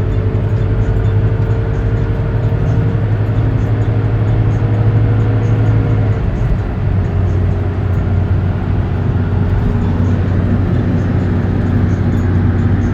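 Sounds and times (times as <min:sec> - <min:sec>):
road noise: 0:00.0 - 0:12.9
vehicle engine running: 0:00.0 - 0:12.9.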